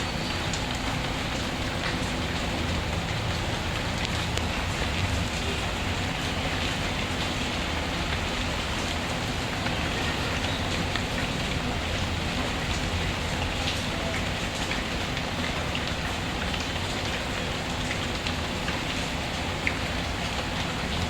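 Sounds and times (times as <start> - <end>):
steady rainfall: 0.0 - 21.0.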